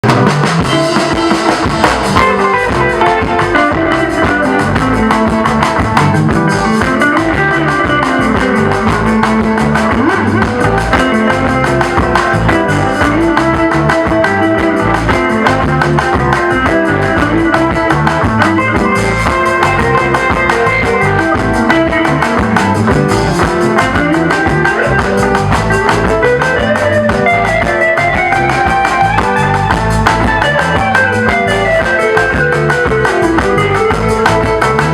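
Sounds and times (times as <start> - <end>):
drum kit beat: 0.0 - 34.9
electric guitar solo: 0.0 - 34.9.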